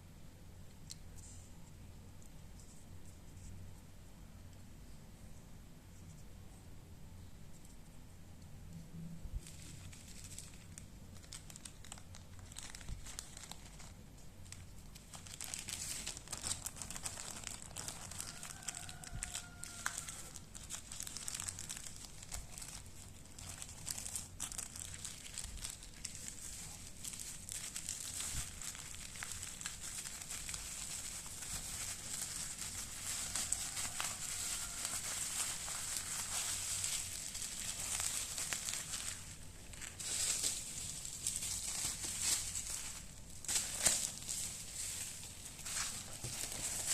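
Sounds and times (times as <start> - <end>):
plastic packaging crinkling: 9.4 - 46.9.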